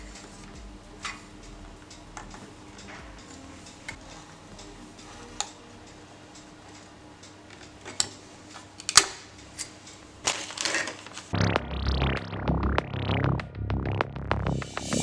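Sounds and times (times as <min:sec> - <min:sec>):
electronic synth music: 0:00.0 - 0:07.0, 0:11.4 - 0:15.0.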